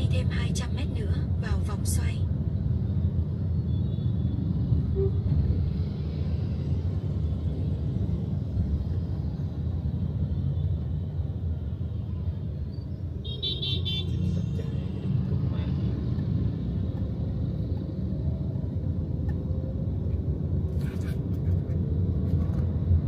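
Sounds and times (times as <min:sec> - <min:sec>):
vehicle road and engine rumble: 0:00.0 - 0:23.0
vehicle horn beeps: 0:13.2 - 0:14.2.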